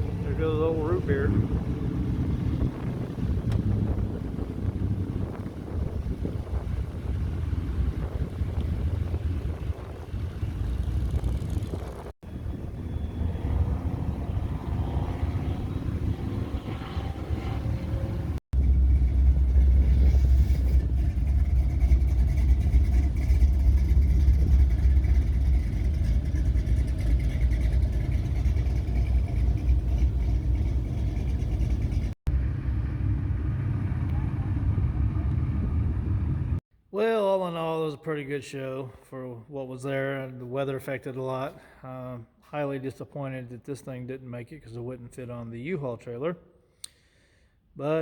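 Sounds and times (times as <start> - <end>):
truck exhaust rumbling: 0.0 - 36.6.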